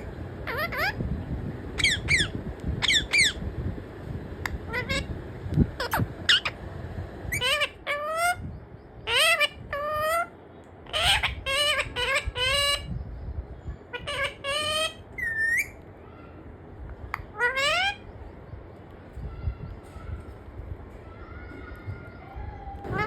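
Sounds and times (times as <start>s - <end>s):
parrot squawking: 0.0s - 1.0s, 1.8s - 3.4s, 4.7s - 5.1s, 5.8s - 6.6s, 7.3s - 8.4s, 9.0s - 12.9s, 13.9s - 16.5s, 17.2s - 18.1s, 22.8s - 23.0s.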